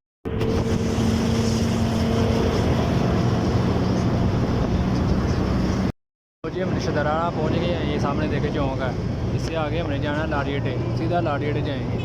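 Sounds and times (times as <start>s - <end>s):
wind noise on microphone: 0.3s - 5.9s.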